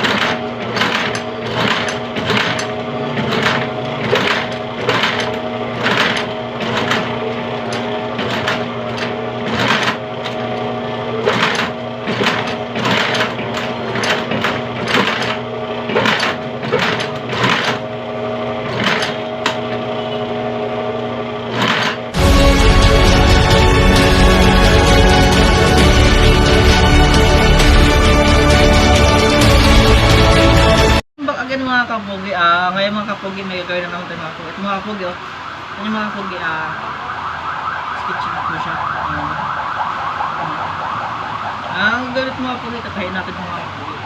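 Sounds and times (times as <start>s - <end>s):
sewing machine motor hum: 0.0s - 31.0s.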